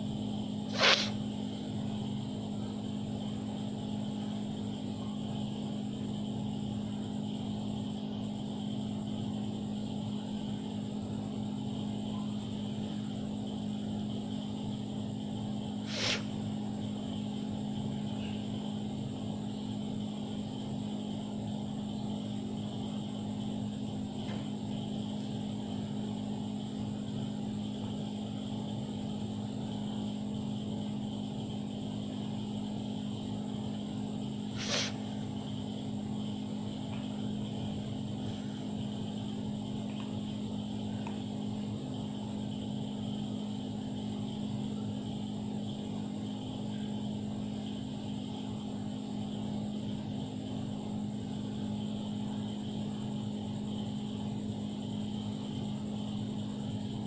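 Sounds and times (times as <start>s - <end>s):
low machine hum: 0.0s - 57.0s.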